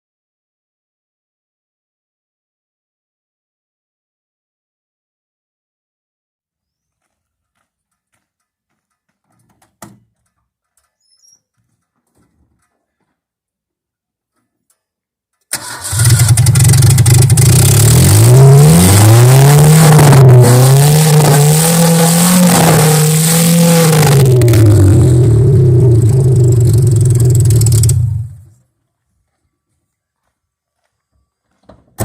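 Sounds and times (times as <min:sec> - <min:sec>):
car engine starting and revving: 0:15.5 - 0:28.5.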